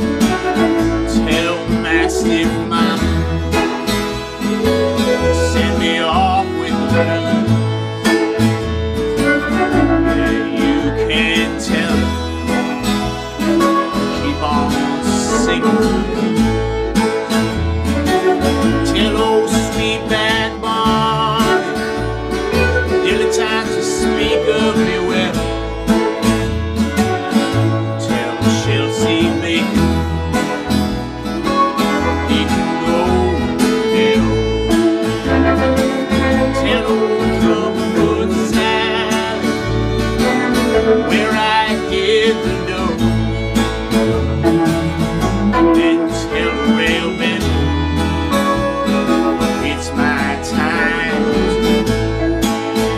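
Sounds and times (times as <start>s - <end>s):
blues band playing: 0.0s - 52.9s
bass rhythm: 43.0s - 46.7s.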